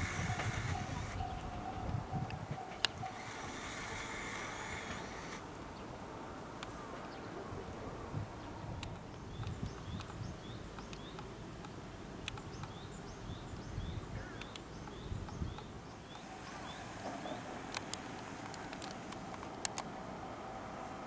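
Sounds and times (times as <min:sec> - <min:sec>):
scattered clicks: 0:08.8 - 0:12.8, 0:14.4 - 0:15.7, 0:17.6 - 0:19.9.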